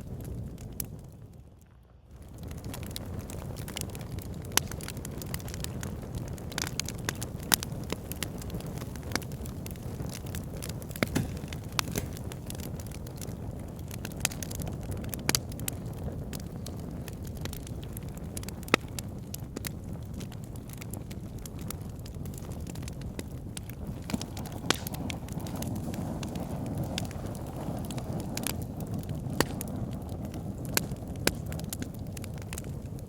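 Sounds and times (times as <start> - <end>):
fire crackling and popping: 0.0 - 33.0
flames rumbling: 0.0 - 33.0.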